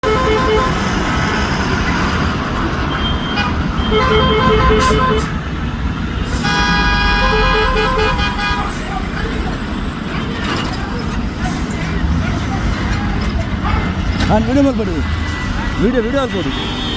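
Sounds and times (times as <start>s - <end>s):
multi-tone musical air horn: 0.0s - 0.9s, 3.4s - 5.4s, 6.3s - 8.9s.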